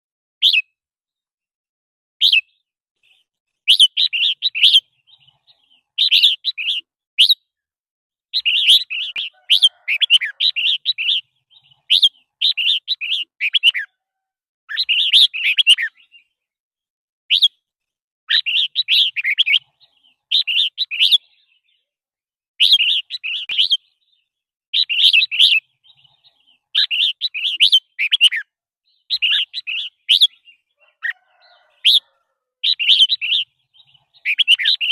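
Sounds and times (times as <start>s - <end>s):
bulbul singing: 2.2s - 7.5s, 8.3s - 14.0s, 14.7s - 16.4s, 17.3s - 17.6s, 18.3s - 21.9s, 22.6s - 34.9s.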